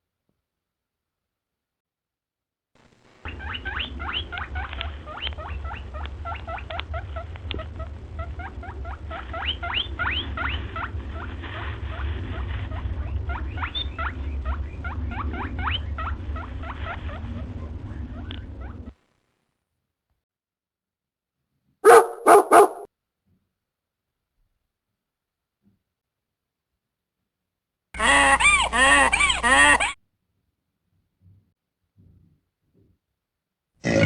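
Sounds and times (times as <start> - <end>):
steady low hum: 2.8 - 19.4
small animal squeaking: 3.3 - 18.9.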